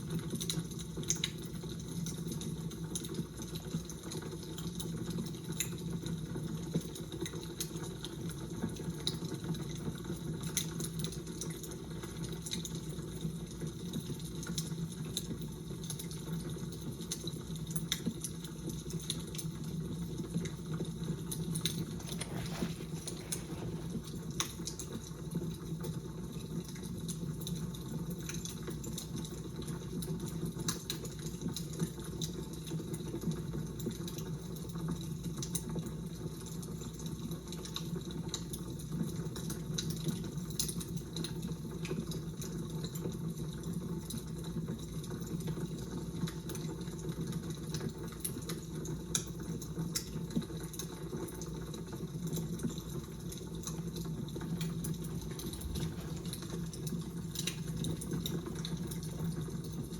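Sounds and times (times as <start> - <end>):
fire crackling: 0.1 - 32.5, 47.9 - 59.9.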